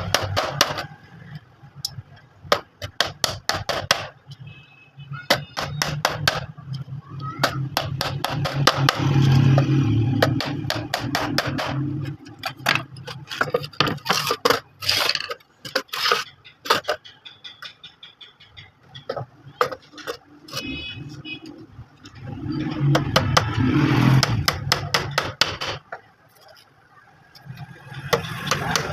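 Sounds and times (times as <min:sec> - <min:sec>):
scraping: 0:11.4 - 0:17.6.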